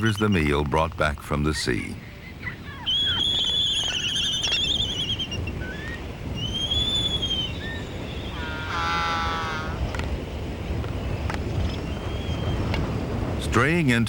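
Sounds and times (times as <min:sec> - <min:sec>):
low background rush: 0:00.0 - 0:14.0
harsh many-toned call: 0:01.6 - 0:09.8
bird chick whistling calls: 0:02.1 - 0:09.8, 0:11.0 - 0:12.6.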